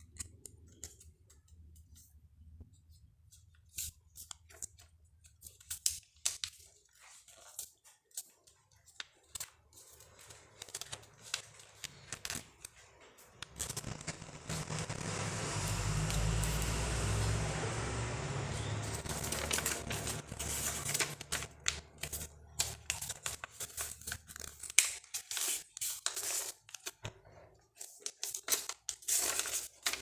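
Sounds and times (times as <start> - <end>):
paper crinkling and creasing: 3.3 - 30.0
rushing noise with low hum: 13.8 - 20.2.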